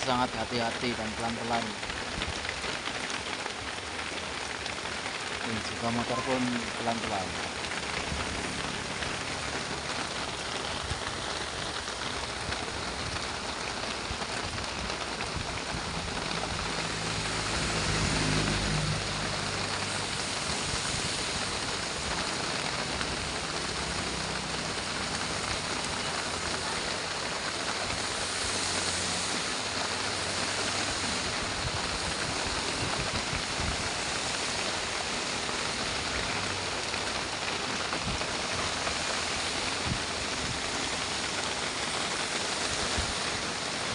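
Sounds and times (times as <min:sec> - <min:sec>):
heavy rain falling: 0:00.0 - 0:43.9
truck engine humming: 0:15.7 - 0:30.3.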